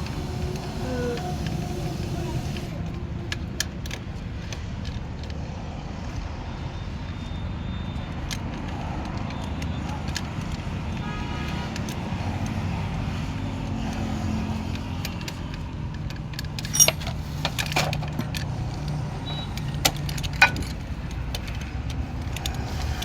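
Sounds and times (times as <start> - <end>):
low vehicle rumble: 0.0 - 6.4
metal tools clinking: 16.4 - 18.4, 19.3 - 21.0.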